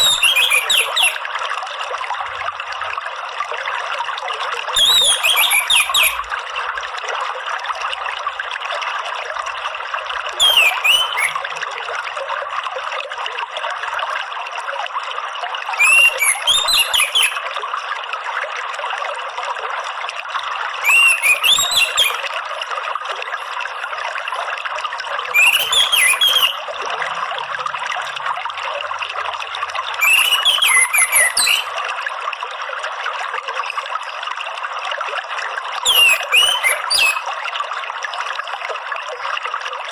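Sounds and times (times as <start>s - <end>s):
bird whistling song: 0.0s - 1.2s, 4.8s - 6.2s, 10.4s - 11.4s, 15.8s - 17.4s, 20.8s - 22.2s, 25.3s - 26.6s, 30.0s - 31.7s, 35.8s - 37.3s
water trickling: 0.0s - 39.9s.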